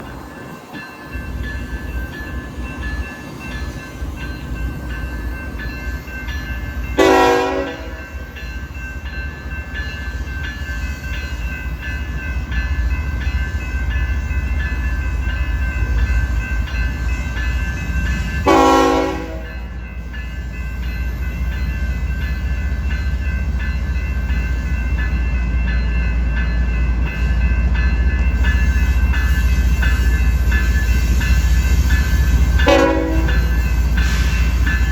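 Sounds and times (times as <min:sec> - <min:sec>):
locomotive air horn blasts: 0:07.0 - 0:08.0, 0:18.5 - 0:19.5, 0:32.6 - 0:33.4.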